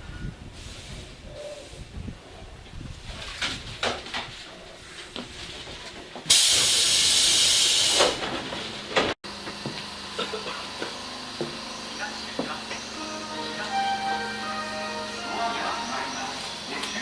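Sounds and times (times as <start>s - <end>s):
compressed air hiss: 0.5s - 2.0s, 6.3s - 8.2s.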